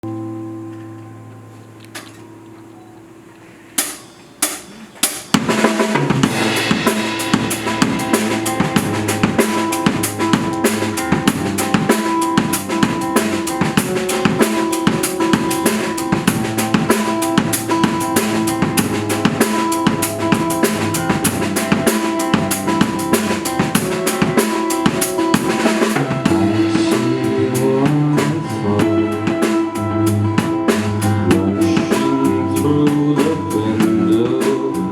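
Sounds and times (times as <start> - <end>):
drum kit: 3.7 - 34.9
rock band playing: 3.8 - 34.9
count-in hits: 6.2 - 28.6.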